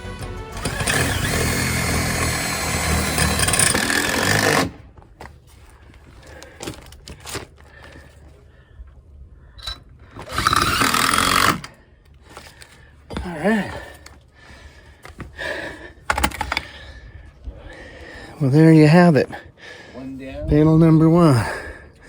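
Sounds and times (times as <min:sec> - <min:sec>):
power tool running: 0:00.0 - 0:04.8, 0:10.2 - 0:11.8.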